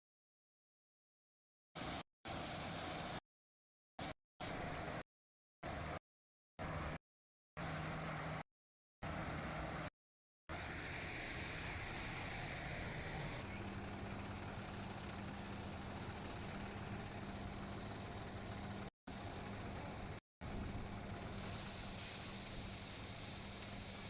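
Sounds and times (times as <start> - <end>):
combine harvester engine drone: 7.6 - 8.4, 9.0 - 9.9, 10.5 - 24.0.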